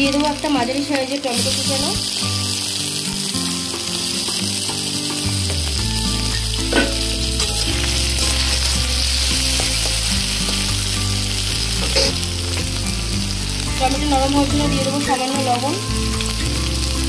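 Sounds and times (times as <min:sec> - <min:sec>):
vegetables sizzling in hot oil: 0:00.0 - 0:17.0.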